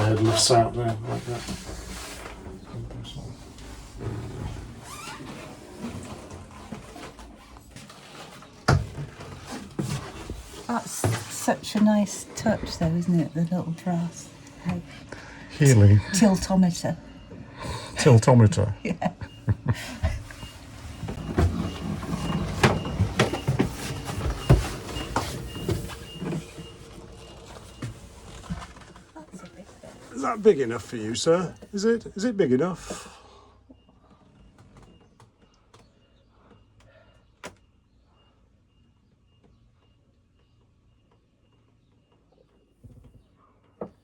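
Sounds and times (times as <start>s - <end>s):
wooden knocks and clunks: 20.0s - 26.8s.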